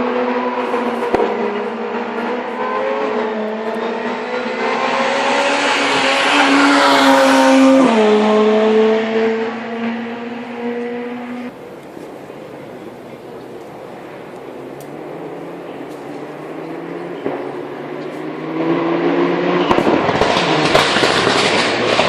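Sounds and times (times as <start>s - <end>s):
rally car engine passing: 0.0s - 22.0s.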